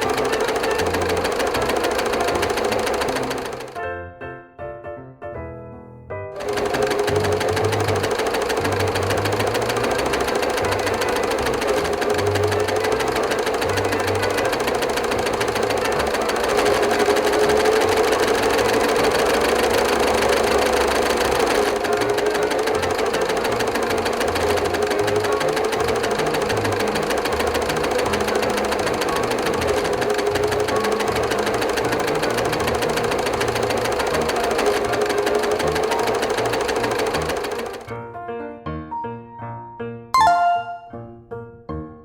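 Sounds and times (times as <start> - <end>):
machine rattling and humming: 0.0 - 3.8, 6.4 - 37.9
music playing: 40.2 - 41.3.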